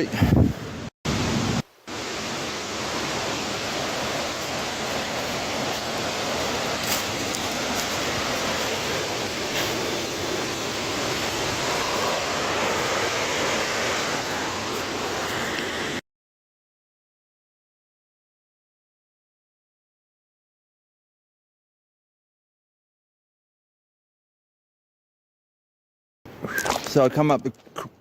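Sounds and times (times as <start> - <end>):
waterfall rushing: 1.1 - 16.0.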